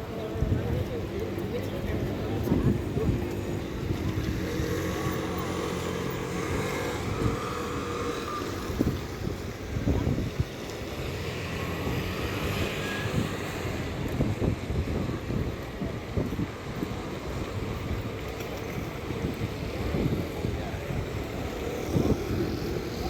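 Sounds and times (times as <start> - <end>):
vehicle engines passing: 0.0 - 23.0.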